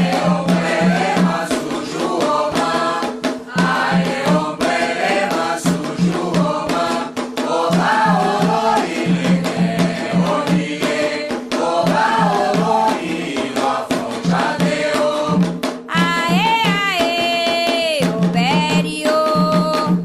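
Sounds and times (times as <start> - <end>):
group of voices singing: 0.0 - 19.9
hand drums beating: 0.0 - 20.0
sharp percussion strikes: 0.0 - 20.0
high solo voice singing: 15.2 - 20.0.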